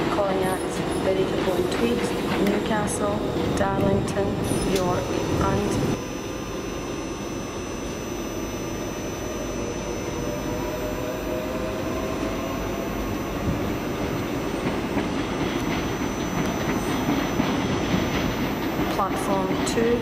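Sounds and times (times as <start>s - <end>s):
train wheels rumbling on track: 0.0s - 6.0s, 10.2s - 20.0s
faint whine: 1.8s - 20.0s.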